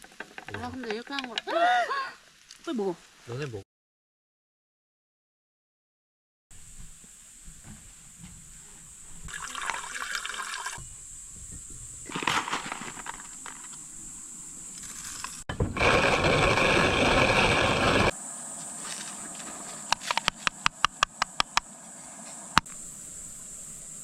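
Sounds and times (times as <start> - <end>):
water running: 8.9 - 11.2.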